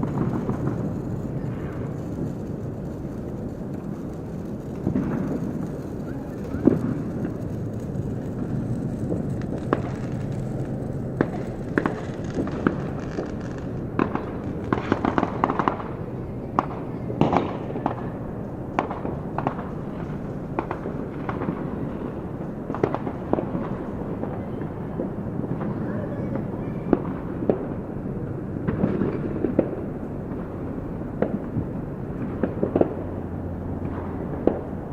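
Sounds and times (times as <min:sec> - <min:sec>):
low rumble: 0:00.0 - 0:24.1
fireworks bangs and cracks: 0:00.0 - 0:34.9.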